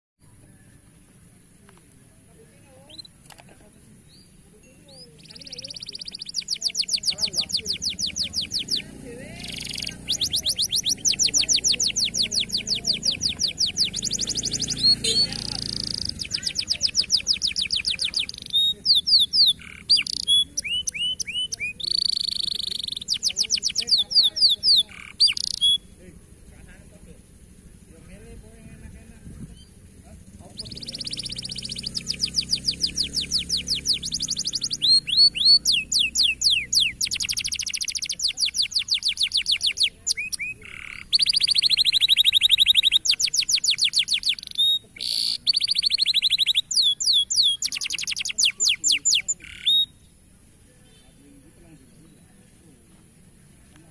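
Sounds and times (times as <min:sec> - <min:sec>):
canary singing: 0:02.2 - 0:53.9.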